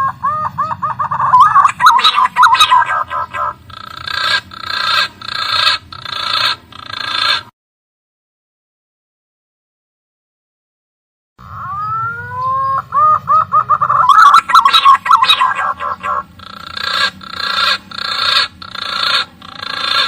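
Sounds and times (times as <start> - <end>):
harsh rasping bird calls: 0.0 - 7.5, 11.4 - 20.0
pigeon whistled calls: 11.4 - 16.2.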